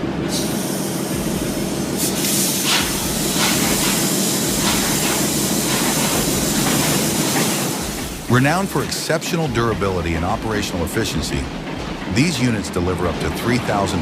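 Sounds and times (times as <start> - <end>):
diesel engine hiss and rumble: 0.0 - 14.0.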